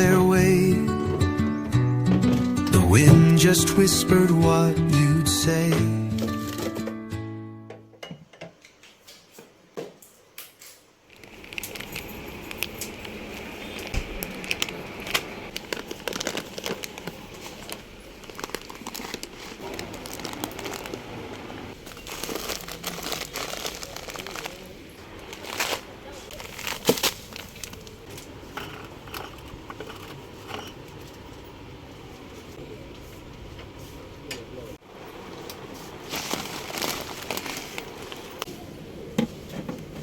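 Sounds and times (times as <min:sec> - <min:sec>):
plastic packaging crinkling: 0:11.1 - 0:30.1, 0:35.5 - 0:38.5.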